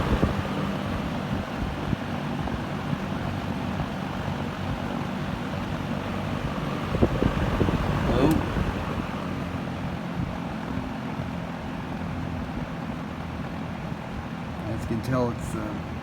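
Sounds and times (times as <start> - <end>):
box fan air rush: 0.0 - 3.2, 4.6 - 10.8
low motor hum: 0.0 - 16.0.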